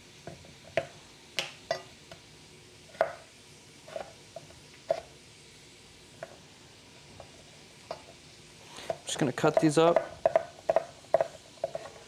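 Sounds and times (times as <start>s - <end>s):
knife hitting cutting board: 8.9s - 12.0s.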